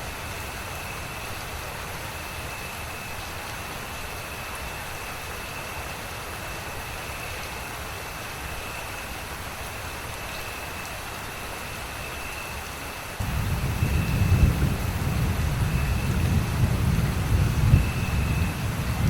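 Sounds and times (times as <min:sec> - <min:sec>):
steady rain: 0:00.0 - 0:19.0
low rumble: 0:13.2 - 0:19.0.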